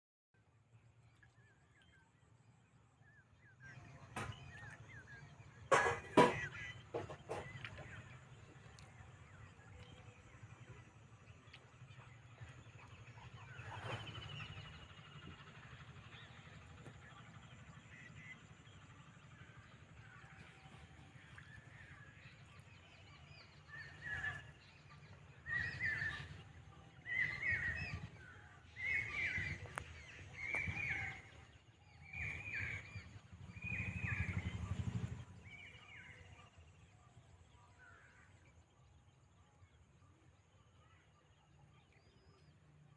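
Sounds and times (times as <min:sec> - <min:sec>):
bird calling: 0:03.7 - 0:08.2, 0:25.4 - 0:31.5.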